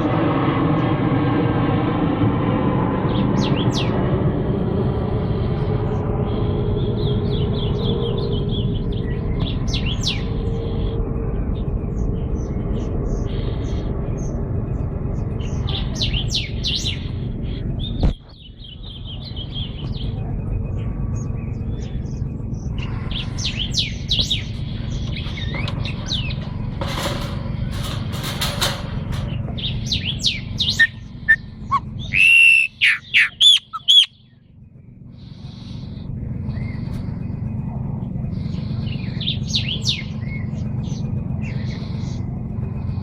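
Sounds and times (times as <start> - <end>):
steady low rumble: 0.0 - 43.0
songbirds chirping and singing: 3.0 - 4.1, 5.3 - 43.0
loud clear whistled notes: 30.7 - 34.1.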